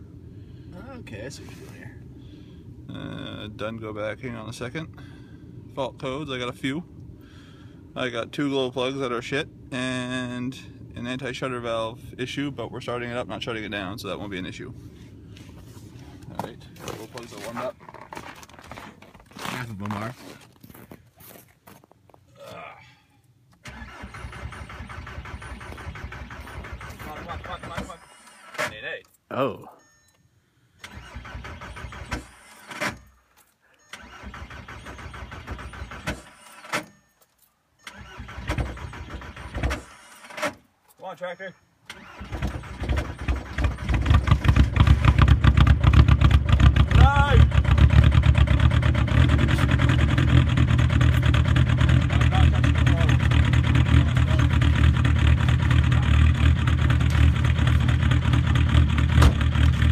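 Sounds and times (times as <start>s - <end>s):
starter motor cranking diesel engine: 23.6s - 28.7s, 30.8s - 33.0s, 33.8s - 36.8s, 37.8s - 40.5s, 41.9s - 59.9s.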